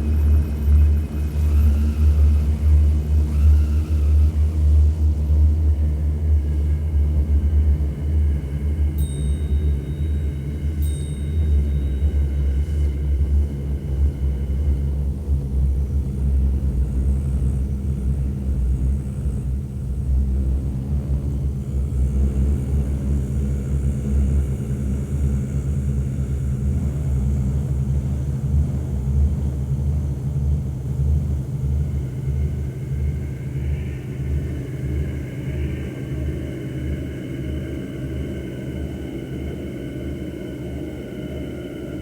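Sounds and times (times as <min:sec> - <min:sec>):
dark ambient low drone: 0:00.0 - 0:42.0
faint high ringing tone: 0:08.8 - 0:14.2, 0:31.9 - 0:42.0.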